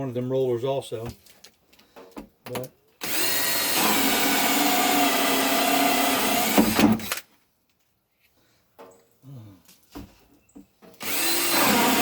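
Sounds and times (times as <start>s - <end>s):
cordless drill whine: 3.0s - 7.2s, 11.0s - 12.0s.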